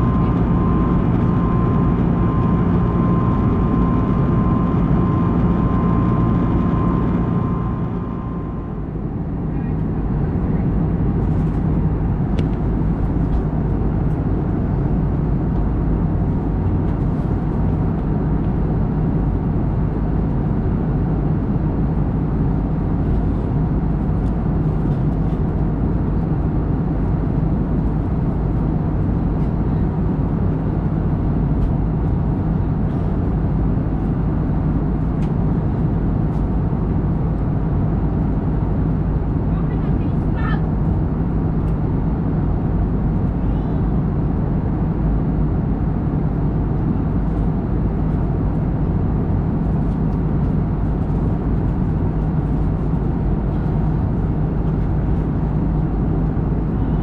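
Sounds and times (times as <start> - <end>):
airflow rush in cabin: 0.0 - 57.0
low engine hum: 0.0 - 57.0.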